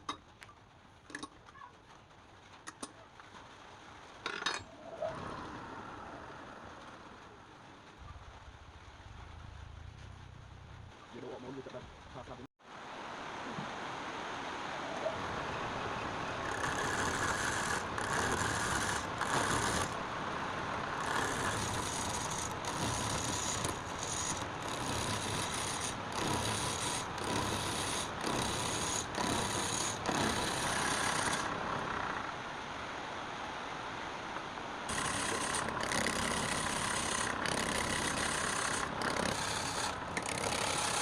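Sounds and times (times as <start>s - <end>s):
hissing cutting or grinding: 15.9s - 32.3s, 34.9s - 41.0s
power tool humming: 16.3s - 20.0s, 20.8s - 32.2s, 34.9s - 41.0s.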